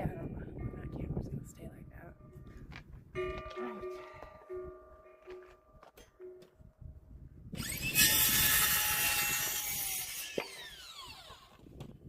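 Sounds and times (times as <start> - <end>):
saw cutting wooden board: 7.6 - 11.7
electric saw whining: 7.6 - 11.9.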